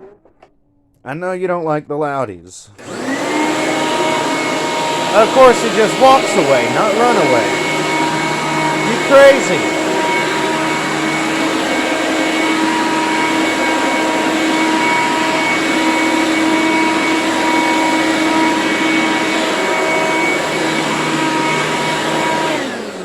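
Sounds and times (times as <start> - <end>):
vacuum cleaner running: 2.8 - 23.0.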